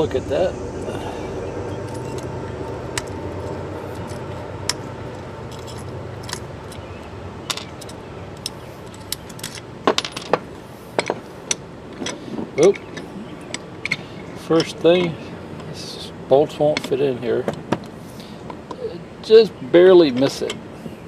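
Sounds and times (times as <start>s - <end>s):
low hum: 0.0s - 16.3s
metal bolts clicking and clinking: 1.8s - 15.2s, 20.0s - 20.6s.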